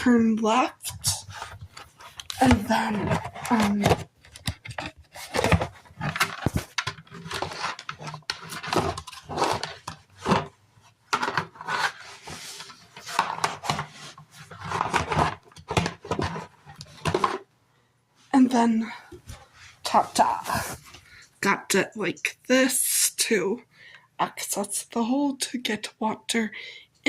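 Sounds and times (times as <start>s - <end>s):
plastic scraping rubs: 0.8s - 17.4s.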